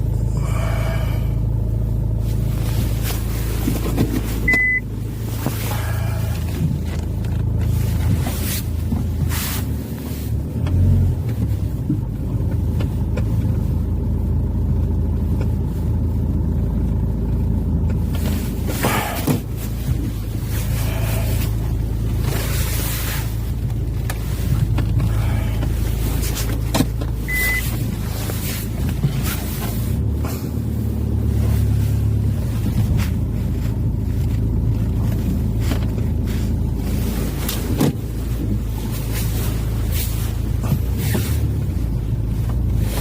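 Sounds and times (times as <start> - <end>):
car engine running: 0.0 - 43.0
short high beep: 4.5 - 4.9, 27.3 - 27.7.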